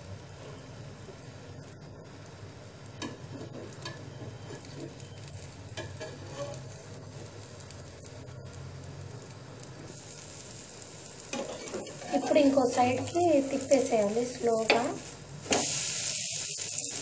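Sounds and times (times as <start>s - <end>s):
omelette sizzling in oil: 0.0s - 17.0s.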